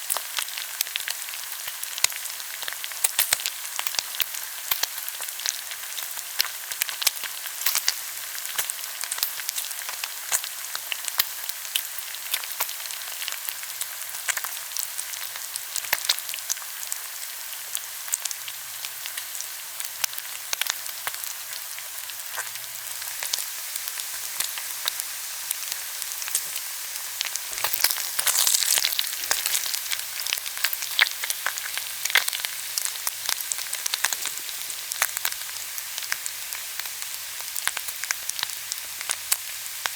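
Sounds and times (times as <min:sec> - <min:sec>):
pork belly sizzling on a grill: 0:00.0 - 0:39.9
crackling fat pops: 0:27.2 - 0:32.4.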